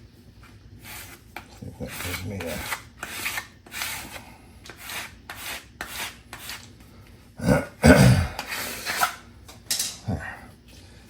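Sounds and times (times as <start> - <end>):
rubbing strokes on tape: 0.4 - 6.8.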